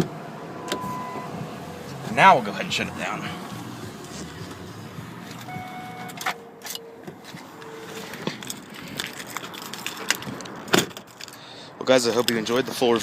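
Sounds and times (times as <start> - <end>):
short electronic tones: 0.7 - 1.3, 5.5 - 7.0.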